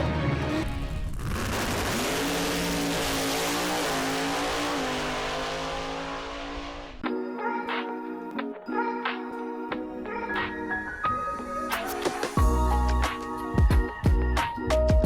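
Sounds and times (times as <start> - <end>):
car engine revving: 0.4 - 7.0.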